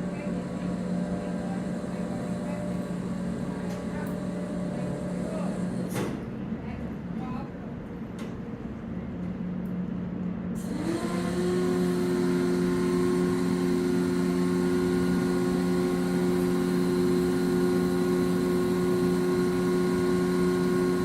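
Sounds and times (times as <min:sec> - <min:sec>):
winch motor whining and humming: 0:00.0 - 0:06.1, 0:10.6 - 0:21.0.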